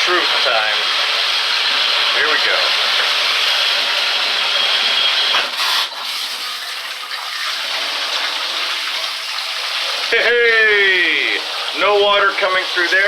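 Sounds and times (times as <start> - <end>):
water running from faucet: 0.0 - 13.0.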